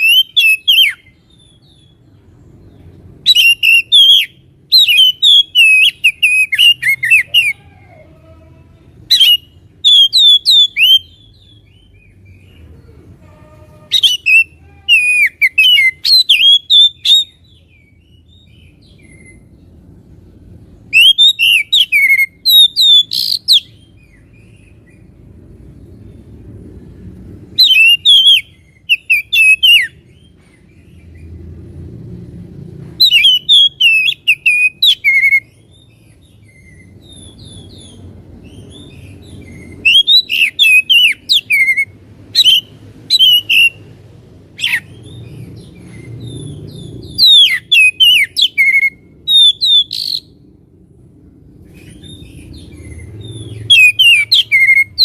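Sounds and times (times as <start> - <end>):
bird singing whistled phrases: 0.0 - 2.0, 3.2 - 7.6, 9.1 - 11.9, 13.9 - 19.5, 20.9 - 24.5, 27.6 - 30.0, 33.0 - 35.6, 39.5 - 43.8, 47.1 - 50.4, 53.6 - 55.0.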